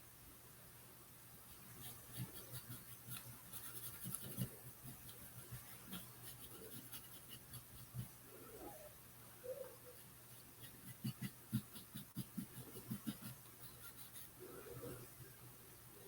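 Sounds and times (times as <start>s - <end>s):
faint low hum: 0.0s - 16.0s
paintbrush scratching: 1.4s - 8.1s, 9.9s - 15.1s.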